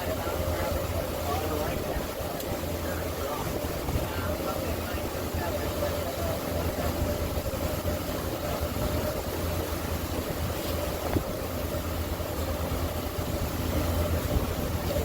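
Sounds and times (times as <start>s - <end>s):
outboard motor running: 0.0s - 15.0s
steady hum: 0.0s - 15.0s
water rushing past: 0.0s - 15.0s.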